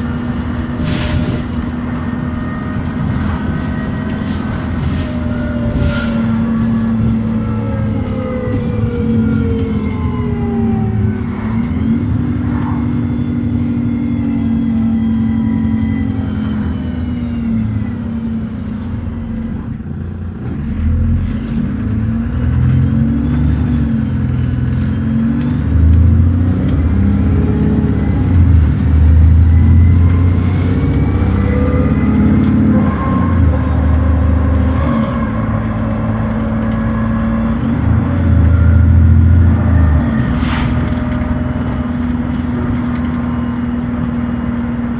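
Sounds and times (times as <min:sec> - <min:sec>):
driveline whine: 0:00.0 - 0:20.0
bus diesel engine revving: 0:00.0 - 0:44.9.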